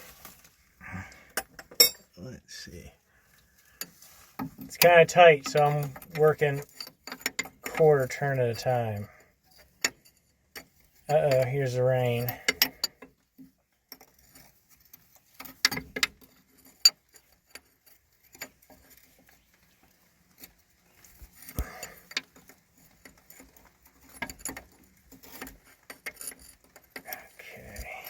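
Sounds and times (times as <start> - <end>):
wrench clinking on metal: 1.3 - 2.1, 3.8 - 13.1, 20.4 - 28.0
raindrops tapping on metal: 4.0 - 6.8.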